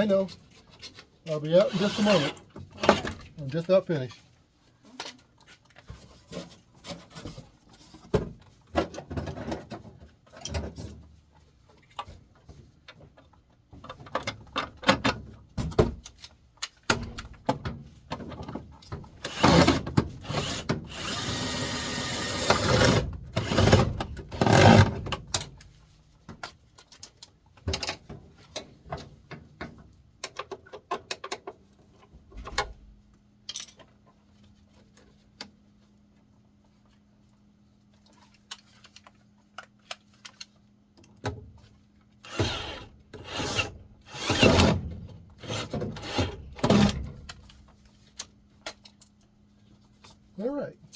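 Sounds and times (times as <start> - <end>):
power drill running: 1.6 - 2.4, 19.2 - 24.8, 42.3 - 44.8, 45.4 - 47.0.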